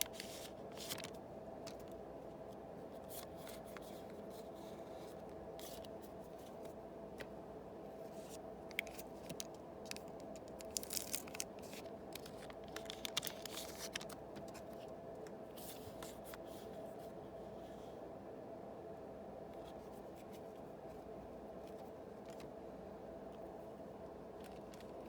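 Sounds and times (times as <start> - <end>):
cards rustling and clicking: 0.0 - 2.0, 8.1 - 14.9, 24.4 - 25.0
background hum: 0.0 - 25.0
card packs tearing: 10.5 - 14.2.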